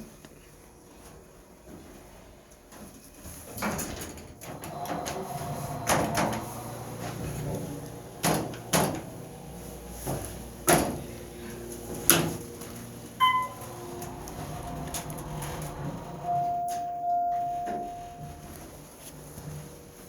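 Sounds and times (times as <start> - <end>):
passenger lift running: 3.8 - 20.0
steady tone: 5.5 - 18.6
short beep: 13.2 - 13.6, 16.2 - 18.5.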